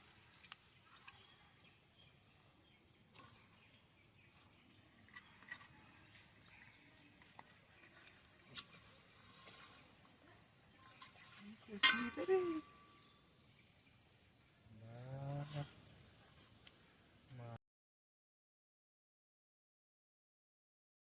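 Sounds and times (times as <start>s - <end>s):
leaves and thread rustling: 0.0s - 13.8s
cricket trilling: 1.1s - 17.6s.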